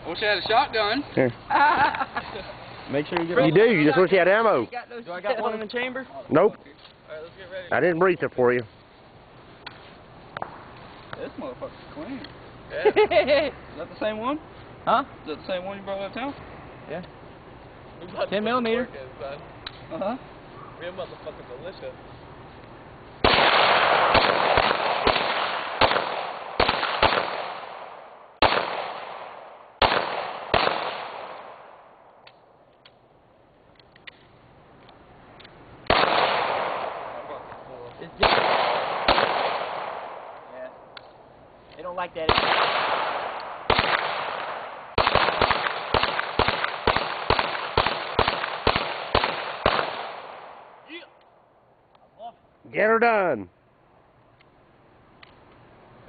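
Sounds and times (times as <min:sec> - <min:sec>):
pistol shots echoing: 0:23.2 - 0:32.0, 0:35.9 - 0:37.5, 0:38.2 - 0:40.4, 0:42.2 - 0:50.8.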